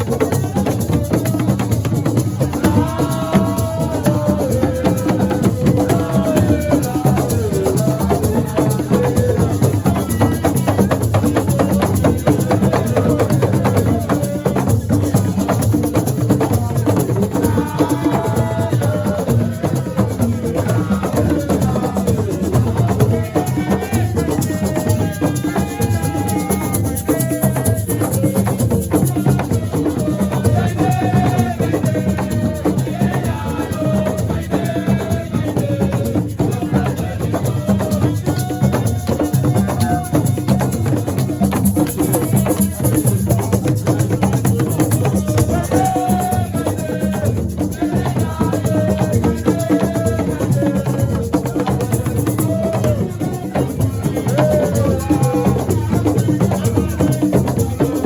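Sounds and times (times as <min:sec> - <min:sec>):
drums: 0:00.0 - 0:58.0
person singing: 0:42.0 - 0:58.0.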